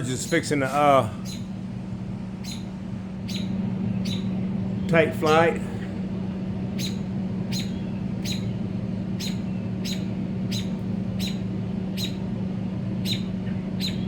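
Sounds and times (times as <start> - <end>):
steady low hum: 0.0 - 14.0
bird chirping: 1.2 - 1.5, 2.4 - 6.0, 6.8 - 12.3, 13.0 - 14.0.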